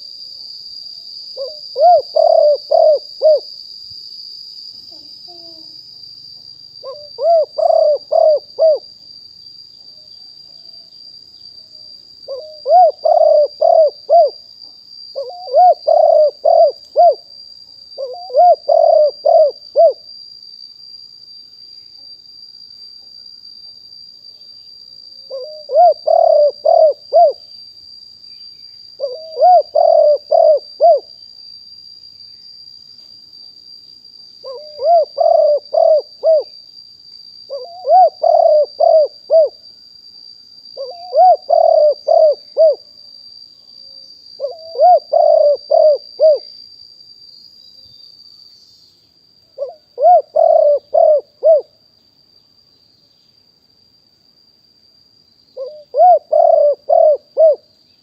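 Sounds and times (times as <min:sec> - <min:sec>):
dove cooing: 0:01.4 - 0:03.5, 0:04.9 - 0:05.8, 0:06.8 - 0:08.8, 0:12.3 - 0:14.4, 0:15.2 - 0:17.3, 0:18.0 - 0:20.0, 0:25.3 - 0:27.4, 0:29.0 - 0:31.1, 0:34.4 - 0:36.5, 0:37.5 - 0:39.6, 0:40.8 - 0:42.8, 0:44.4 - 0:46.5, 0:49.6 - 0:51.7, 0:55.6 - 0:57.6.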